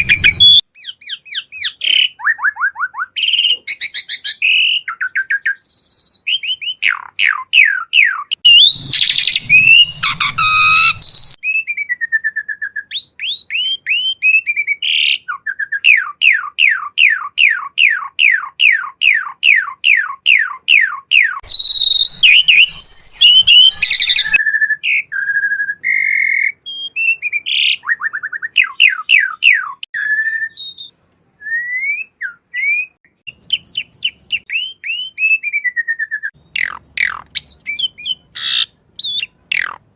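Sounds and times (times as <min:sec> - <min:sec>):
starling singing: 0:00.0 - 0:11.4, 0:12.9 - 0:25.1, 0:33.3 - 0:39.9.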